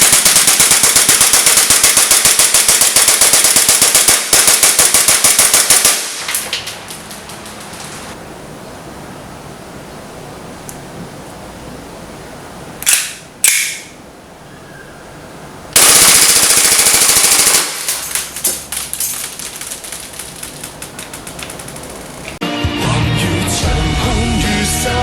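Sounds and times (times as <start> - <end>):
airsoft pistol full-auto burst: 0.0 - 6.4, 15.8 - 18.3.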